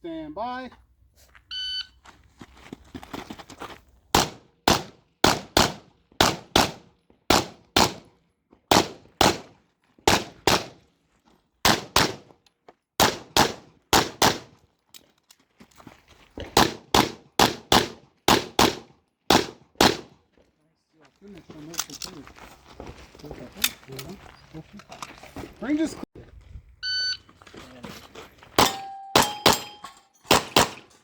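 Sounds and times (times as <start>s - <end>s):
pistol shots: 4.1s - 8.1s, 8.7s - 9.5s, 10.1s - 10.8s, 11.6s - 12.2s, 13.0s - 14.5s, 16.6s - 20.1s, 28.6s - 31.0s.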